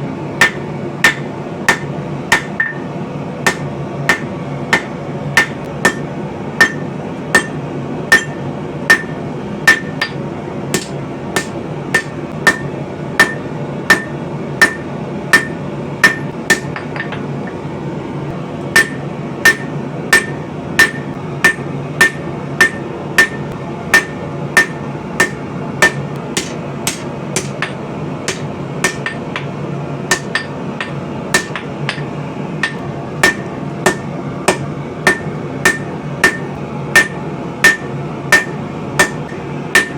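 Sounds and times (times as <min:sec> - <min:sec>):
steady low hum: 0:00.0 - 0:39.9
hammer ringing on anvil: 0:00.4 - 0:02.9, 0:03.5 - 0:10.2, 0:10.8 - 0:17.2, 0:18.8 - 0:29.5, 0:30.1 - 0:39.9.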